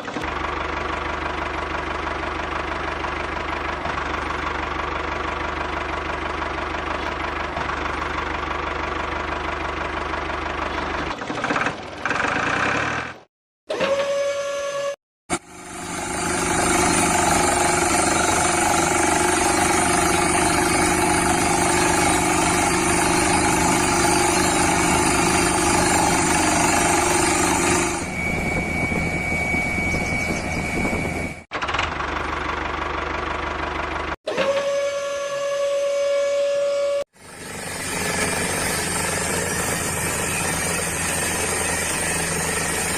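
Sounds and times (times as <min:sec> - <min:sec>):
small motor running: 0:13.9 - 0:31.4, 0:37.0 - 0:42.9
steady high tone: 0:16.7 - 0:31.4.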